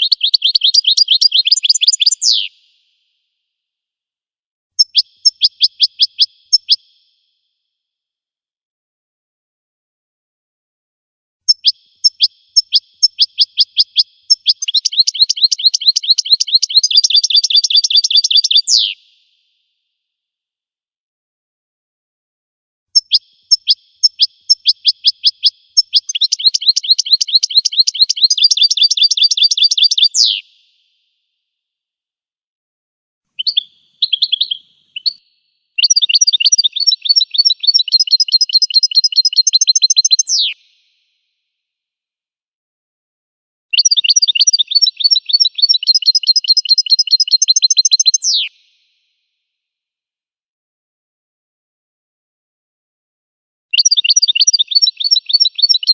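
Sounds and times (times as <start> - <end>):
bird twittering: 0.0 - 2.6, 4.8 - 6.8, 11.5 - 19.0, 23.0 - 30.5, 33.4 - 40.6, 43.7 - 48.5, 53.8 - 55.9
finch song: 0.0 - 3.3, 4.8 - 7.6, 11.4 - 19.8, 22.9 - 31.3, 33.3 - 41.4, 43.7 - 49.3, 53.7 - 55.9.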